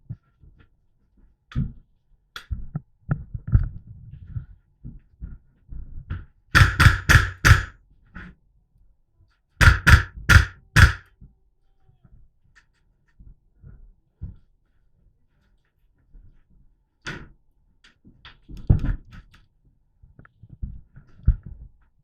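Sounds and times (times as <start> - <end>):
airsoft rifle shots: 6.6 - 7.7, 9.6 - 11.0.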